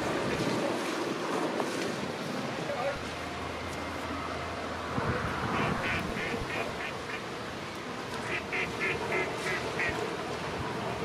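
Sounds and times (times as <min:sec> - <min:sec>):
wind noise: 0:04.8 - 0:06.9.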